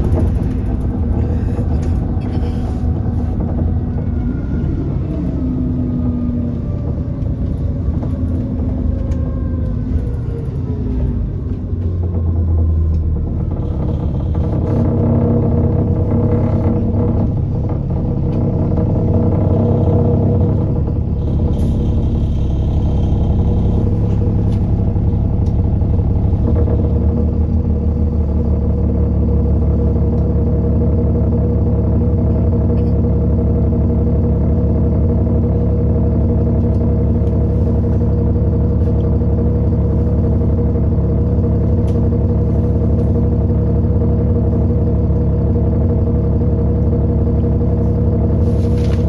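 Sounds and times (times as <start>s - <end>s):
bus engine and road rumble: 0.0s - 49.0s.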